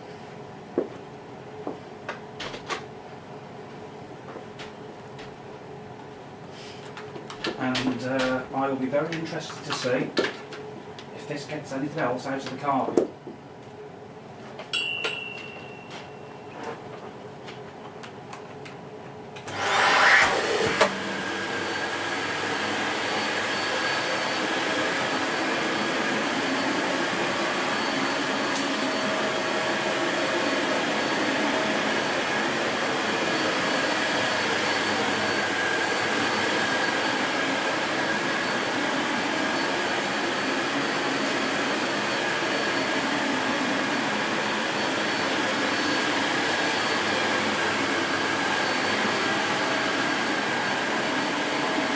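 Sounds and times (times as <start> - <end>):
vacuum cleaner motor whining: 19.4 - 51.9.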